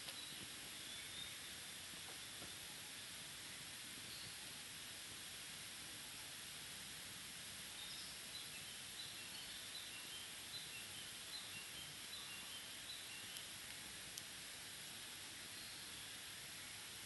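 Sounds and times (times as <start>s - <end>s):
faint ticks: 13.2s - 14.4s.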